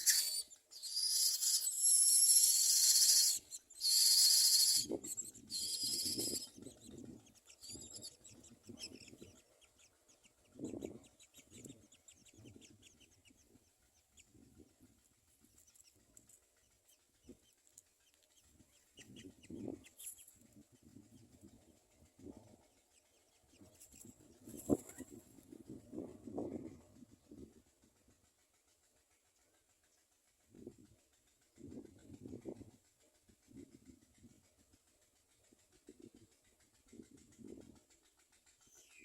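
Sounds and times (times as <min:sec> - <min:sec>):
nestlings raspy hissing calls: 0:00.0 - 0:06.8.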